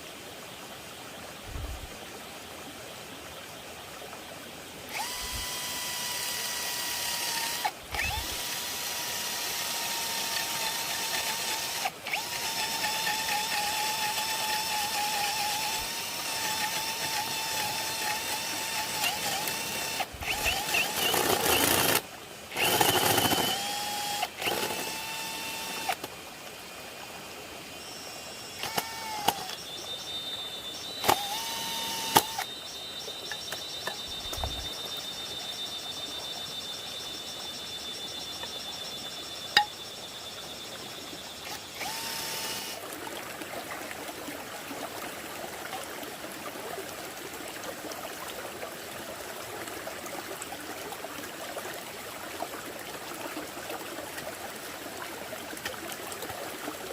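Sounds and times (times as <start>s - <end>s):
electric drill whining: 4.9s - 26.1s, 27.8s - 32.6s, 33.3s - 35.1s, 41.3s - 42.8s.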